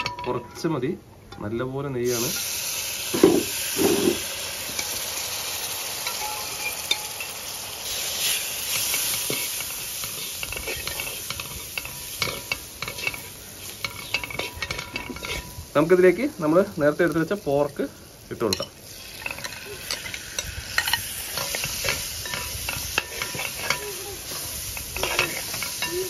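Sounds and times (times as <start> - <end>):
liquid sizzling in hot pot: 2.0 - 26.0
steel spoon scraping pot: 3.2 - 5.0, 6.0 - 15.7, 18.5 - 26.0.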